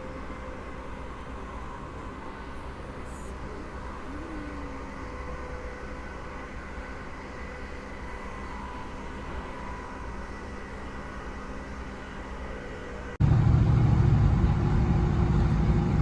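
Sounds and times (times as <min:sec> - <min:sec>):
humming tones: 0:00.0 - 0:16.0
train rumbling: 0:12.7 - 0:16.0.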